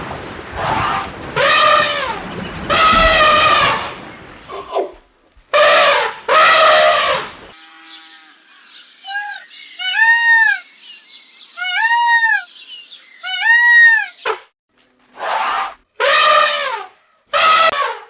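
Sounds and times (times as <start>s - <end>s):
elephant trumpeting: 0.6s - 7.3s, 15.2s - 18.0s
peafowl calling: 4.5s - 8.2s, 9.0s - 10.7s, 11.6s - 12.6s, 13.2s - 14.3s.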